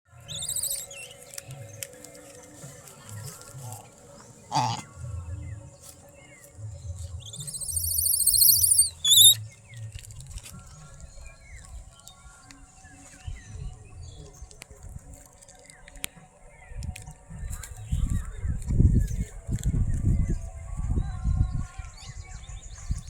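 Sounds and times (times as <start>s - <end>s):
bird wavering call: 0.2s - 1.4s, 7.2s - 9.4s.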